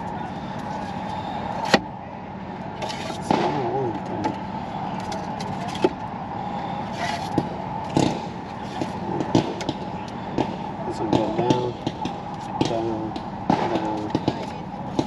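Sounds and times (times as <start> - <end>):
firework bangs: 3.2 - 3.9, 6.9 - 15.0.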